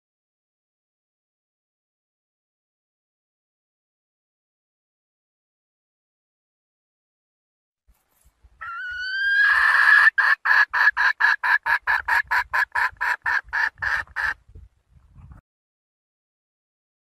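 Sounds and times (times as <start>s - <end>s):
hen clucking rapidly: 8.6s - 14.4s
junglefowl hen calling: 8.6s - 14.4s.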